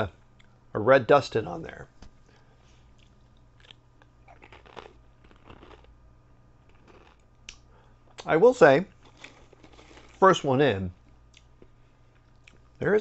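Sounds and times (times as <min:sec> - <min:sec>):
crisp crunching: 0:03.6 - 0:05.9, 0:06.7 - 0:07.2, 0:08.9 - 0:10.6.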